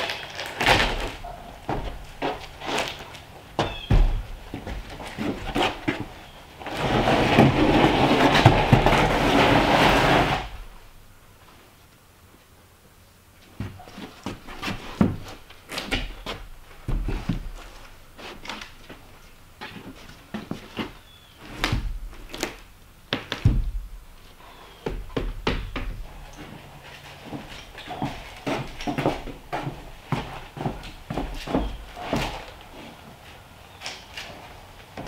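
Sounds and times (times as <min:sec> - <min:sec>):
knocks thuds and clatter: 0:03.6 - 0:10.5, 0:21.6 - 0:22.5, 0:23.2 - 0:24.0.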